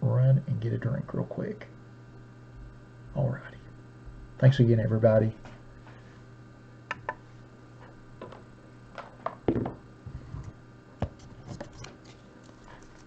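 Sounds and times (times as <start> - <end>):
low electrical hum: 0.0 - 13.0
knock: 9.5 - 9.8.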